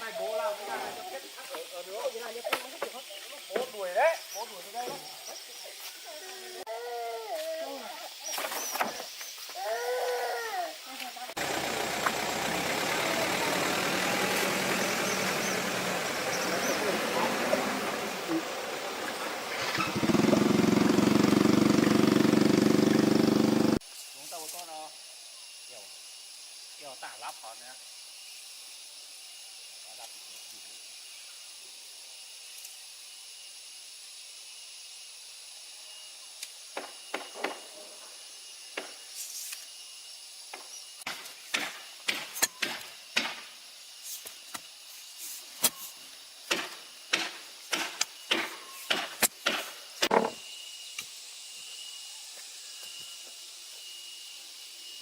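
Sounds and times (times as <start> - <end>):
steady high hiss: 0.0 - 21.2, 21.9 - 55.0.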